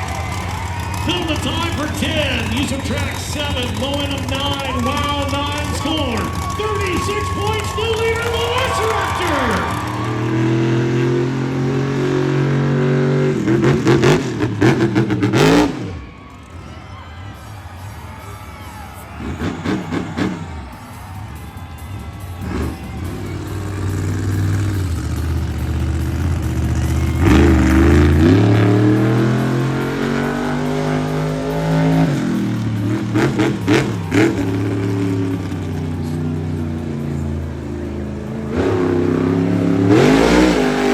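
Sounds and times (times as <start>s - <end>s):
sharp throttle bursts: 0.0s - 16.1s, 17.4s - 40.9s
truck engine revving: 0.0s - 40.9s.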